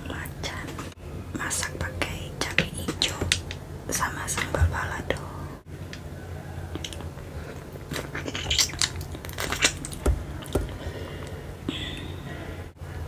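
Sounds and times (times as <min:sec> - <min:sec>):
wet chewing clicks and smacks: 0:06.8 - 0:10.8.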